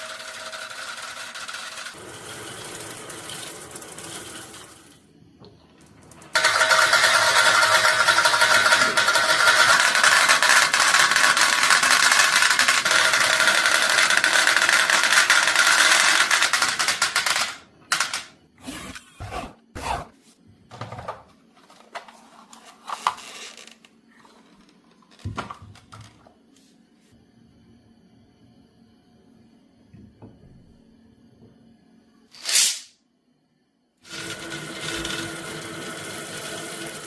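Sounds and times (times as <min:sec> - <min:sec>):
marbles rattling down a track: 0:00.0 - 0:02.0, 0:06.4 - 0:18.2.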